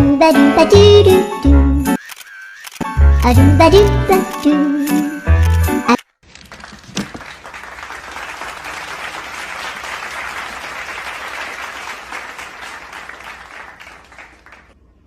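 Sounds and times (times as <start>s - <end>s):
crowd applauding: 6.4s - 14.8s.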